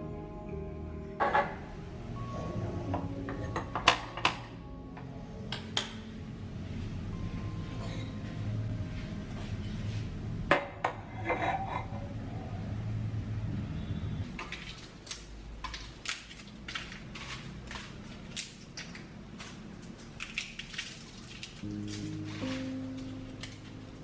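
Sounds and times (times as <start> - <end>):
low steady hum: 0.0 - 14.3
utensils clinking against dishes: 7.7 - 8.4, 10.8 - 12.1.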